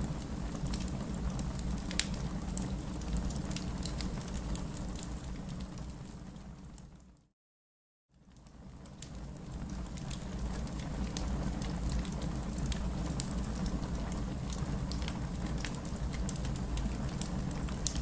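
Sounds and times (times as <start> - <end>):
wood fire burning: 0.0 - 6.9, 8.4 - 18.0
crackles and pops of logs: 1.9 - 2.2, 14.0 - 18.0.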